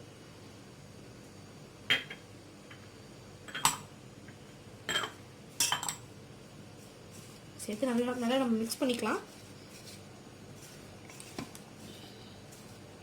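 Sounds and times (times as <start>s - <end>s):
utensils clinking against bowl: 4.9s - 6.0s.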